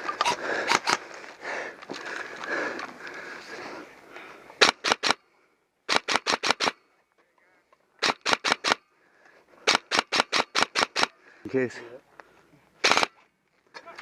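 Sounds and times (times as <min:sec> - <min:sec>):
airsoft gun firing bursts: 0:04.6 - 0:05.2, 0:05.9 - 0:06.8, 0:08.0 - 0:08.8, 0:09.6 - 0:11.1, 0:12.8 - 0:13.1.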